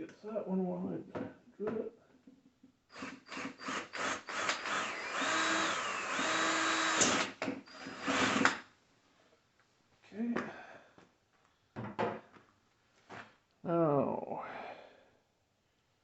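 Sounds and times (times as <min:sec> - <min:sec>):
power drill whining: 0:02.9 - 0:08.6.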